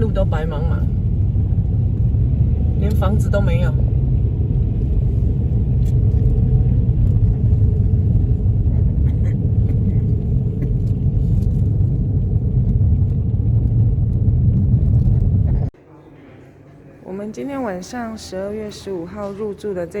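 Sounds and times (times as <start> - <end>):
car driving on snowy road: 0.0 - 15.7.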